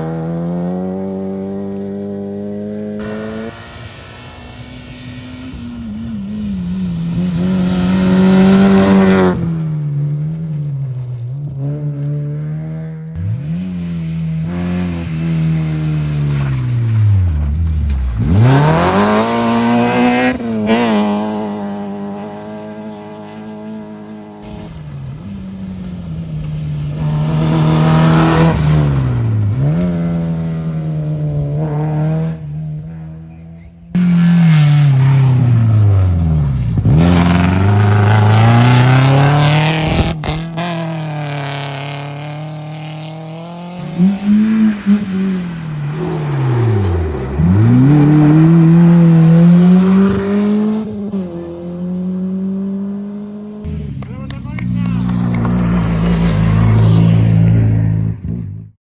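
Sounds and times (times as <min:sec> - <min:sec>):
rally car engines revving: 0:00.0 - 0:58.8.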